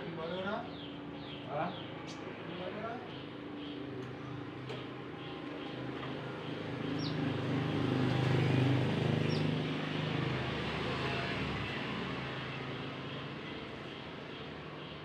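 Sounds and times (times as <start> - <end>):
motor vehicle passing: 6.6 - 14.2.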